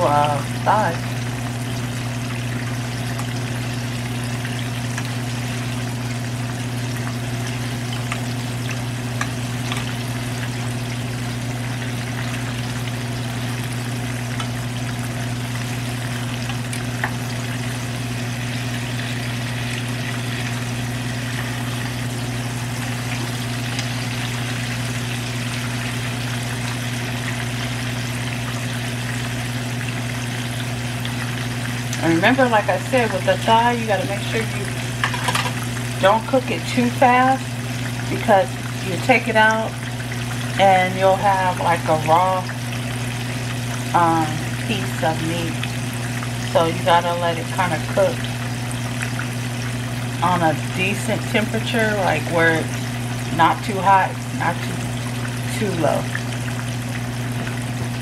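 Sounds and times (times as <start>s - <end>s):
oil popping: 0.0s - 36.4s, 54.1s - 58.0s
chicken frying in oil: 0.0s - 58.0s.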